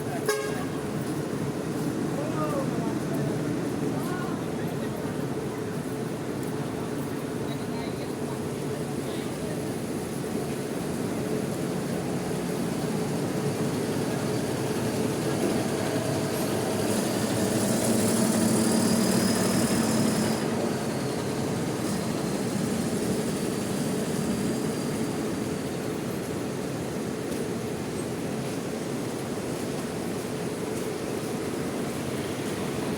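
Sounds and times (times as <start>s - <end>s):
bus diesel engine running: 8.2s - 32.9s.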